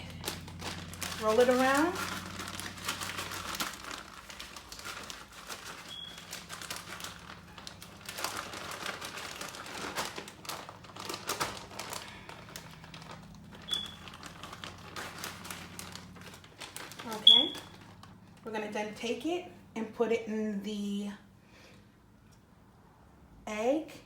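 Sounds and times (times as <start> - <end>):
bag crinkling: 0.0 - 18.4.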